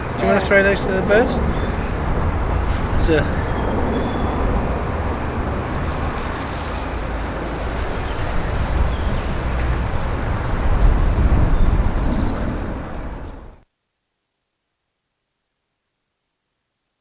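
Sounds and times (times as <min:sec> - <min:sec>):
heavy low rumble: 0:00.0 - 0:13.6.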